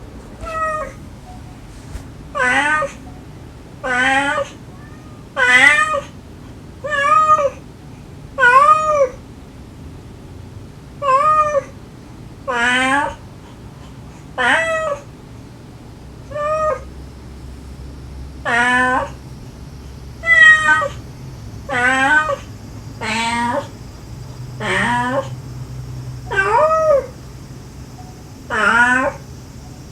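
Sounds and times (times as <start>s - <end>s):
mother cat calling: 0.2s - 1.6s, 2.3s - 6.2s, 6.8s - 7.7s, 8.4s - 9.2s, 11.0s - 11.8s, 12.4s - 15.2s, 16.2s - 17.4s, 18.2s - 29.9s
kittens meowing: 0.4s - 1.6s, 2.3s - 6.2s, 6.8s - 7.6s, 8.4s - 9.2s, 11.0s - 11.7s, 12.5s - 13.2s, 14.4s - 15.1s, 16.2s - 17.0s, 18.4s - 19.3s, 20.1s - 21.1s, 21.7s - 29.9s.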